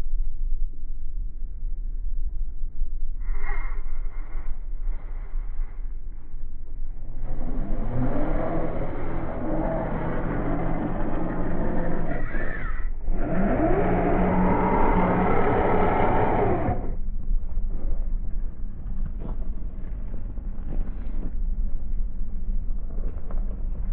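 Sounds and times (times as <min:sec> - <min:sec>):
electric motor whining: 0:07.2 - 0:17.0.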